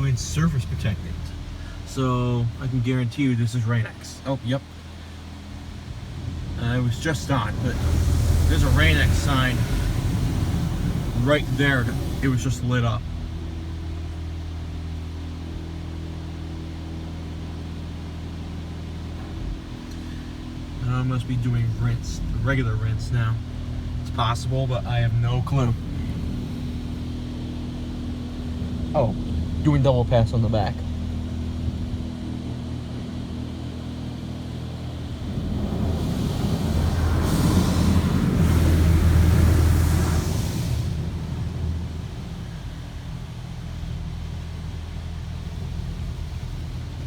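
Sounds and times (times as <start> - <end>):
car wash machinery humming: 0.0 - 47.0
water spray hissing: 6.0 - 13.6, 35.2 - 42.8.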